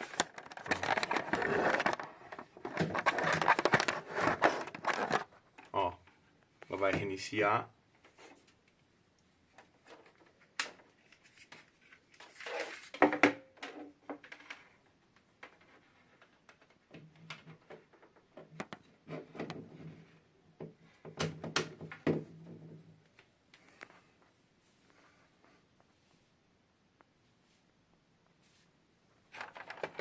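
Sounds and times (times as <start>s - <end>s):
hands handling plastic objects: 0.0s - 7.2s, 9.4s - 24.3s, 29.2s - 30.0s.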